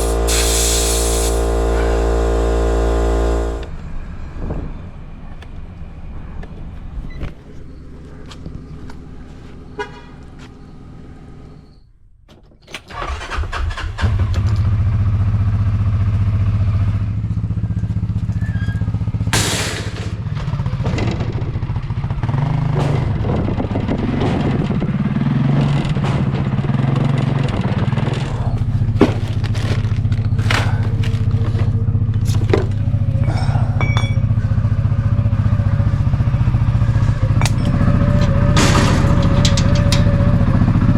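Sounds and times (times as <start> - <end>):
off-road vehicle engine running: 0.0 - 11.8, 12.9 - 40.9
knocks and rattles: 22.8 - 40.9.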